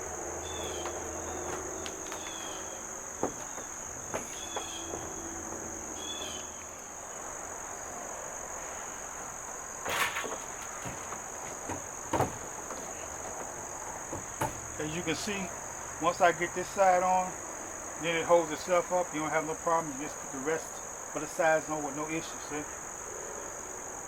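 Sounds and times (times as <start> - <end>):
crickets chirping: 0.0 - 24.0
metal panels knocking and clanking: 9.9 - 14.8.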